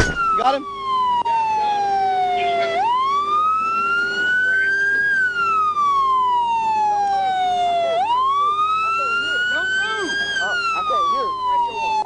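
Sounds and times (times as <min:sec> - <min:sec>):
police siren wailing: 0:00.0 - 0:12.0.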